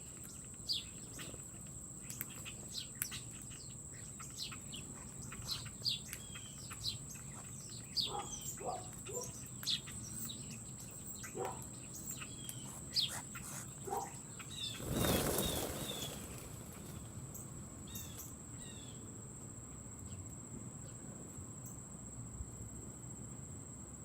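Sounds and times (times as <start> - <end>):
small birds chirping: 0.0 - 19.1
wings flapping: 13.9 - 17.6.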